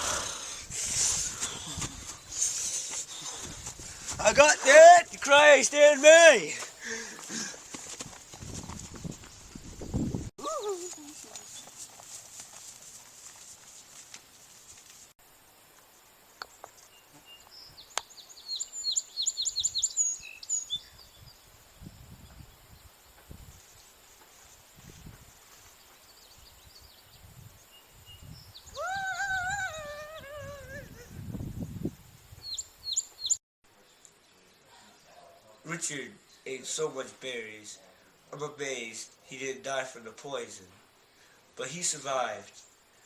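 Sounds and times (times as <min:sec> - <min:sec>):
low rumbles of handling or wind: 0:00.7 - 0:04.5, 0:07.6 - 0:10.3
birds chirping: 0:16.3 - 0:21.4, 0:32.4 - 0:35.6.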